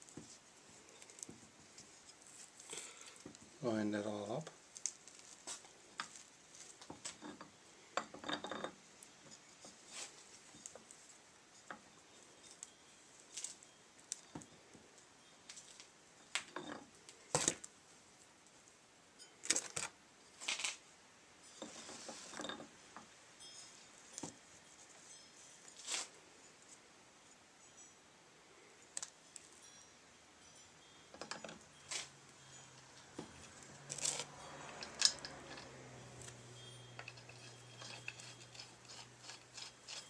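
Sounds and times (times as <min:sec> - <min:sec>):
metal parts clicking and clinking: 0:06.8 - 0:09.8, 0:31.1 - 0:32.1, 0:32.7 - 0:40.0.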